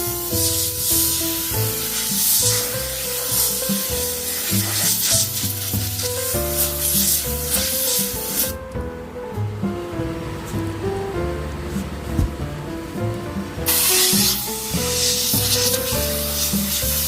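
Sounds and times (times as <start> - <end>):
pressure washer water jet hissing: 0.0 - 8.6, 13.6 - 17.0
background music: 0.0 - 17.0.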